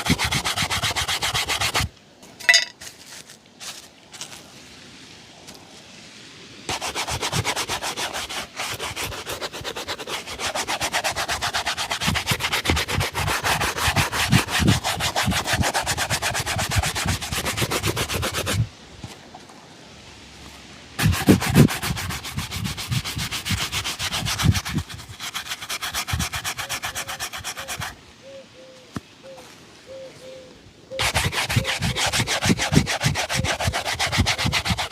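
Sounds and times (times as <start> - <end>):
shoe being buffed: 0.0 - 1.9, 6.7 - 18.6, 21.0 - 28.0, 31.0 - 34.9.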